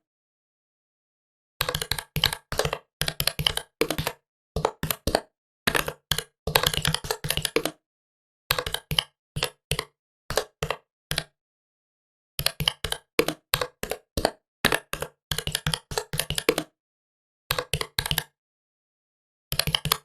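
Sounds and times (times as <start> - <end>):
laptop keyboard typing: 1.6 - 7.8, 8.6 - 11.2, 12.4 - 16.7, 19.5 - 20.0.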